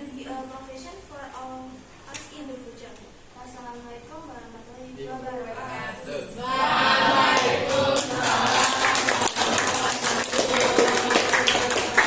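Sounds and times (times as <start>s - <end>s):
voices calling out together: 5.6s - 12.0s
audience applauding: 7.1s - 12.0s.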